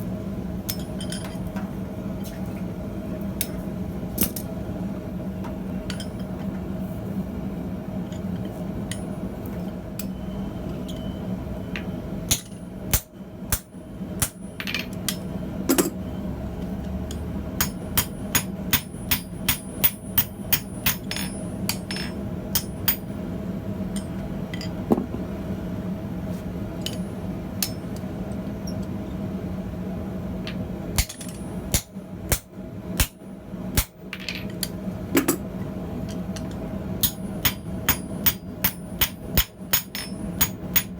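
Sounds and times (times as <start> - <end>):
steady low hum: 0.0 - 40.9
hammer striking steel on anvil: 12.3 - 14.5, 17.6 - 23.1, 27.6 - 28.0, 31.0 - 33.2, 37.0 - 40.9.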